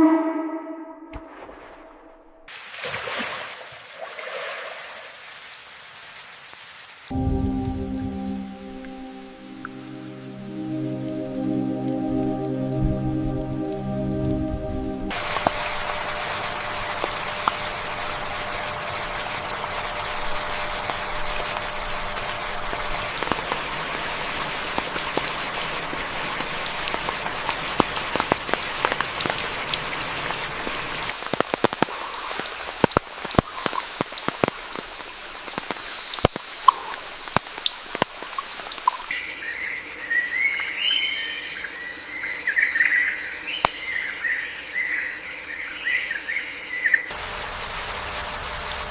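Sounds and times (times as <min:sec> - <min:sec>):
heavy water drips: 0:02.5 - 0:41.0, 0:46.9 - 0:48.9
rain pattering on foliage: 0:02.5 - 0:41.6, 0:46.9 - 0:48.9.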